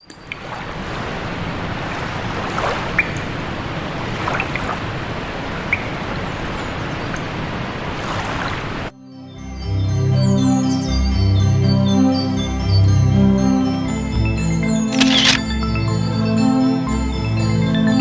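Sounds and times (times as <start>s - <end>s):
flowing water: 0.0s - 8.9s
high bird chirps: 5.7s - 6.0s.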